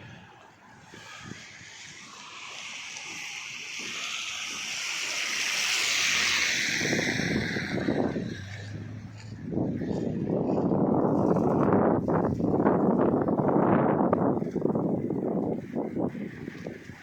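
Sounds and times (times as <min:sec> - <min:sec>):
tyre hiss on wet road: 0:00.7 - 0:09.3
low rumble: 0:00.8 - 0:14.5.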